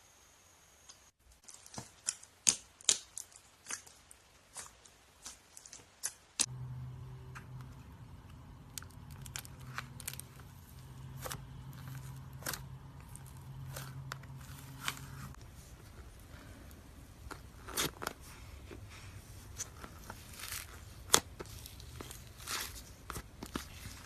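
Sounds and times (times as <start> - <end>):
slime popping and crackling: 1.3 - 6.5, 8.5 - 15.3
steady low hum: 6.4 - 24.0.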